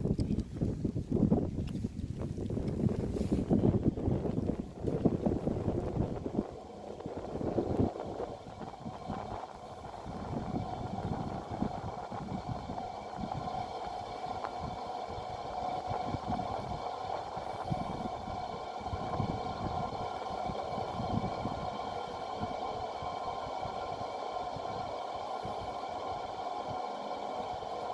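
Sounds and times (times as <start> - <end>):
rushing buffeting air: 0.0 - 27.9
electric fan whine: 1.2 - 27.9.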